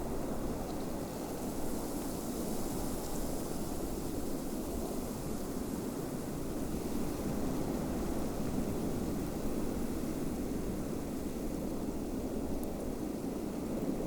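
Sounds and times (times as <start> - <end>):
snowstorm wind blowing: 0.0 - 14.0.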